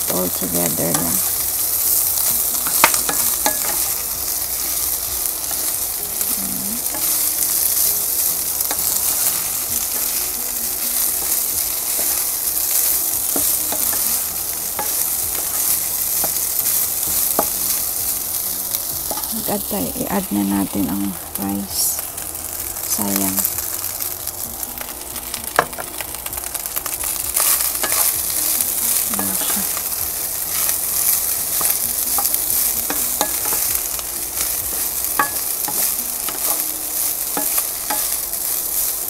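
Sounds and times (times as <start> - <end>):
rice sizzling in a pan: 0.0 - 39.0
spatula tapping on pan: 2.6 - 3.9.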